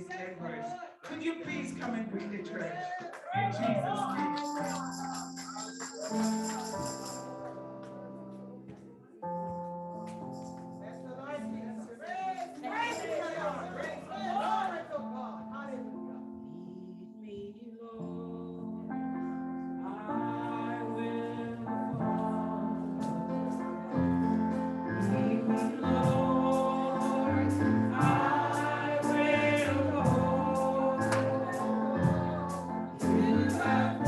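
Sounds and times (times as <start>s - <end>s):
keyboard chords: 1.4s - 34.0s
voices singing: 19.8s - 34.0s
drum beat: 28.0s - 28.4s.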